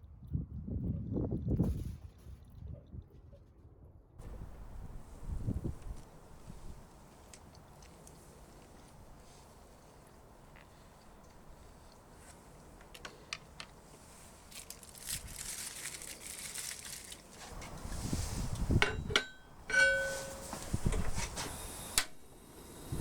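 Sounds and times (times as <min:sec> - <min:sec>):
metal cookware clinking: 0:17.5 - 0:21.1
ringing metal clangs: 0:18.7 - 0:21.2
hiss: 0:20.1 - 0:23.0.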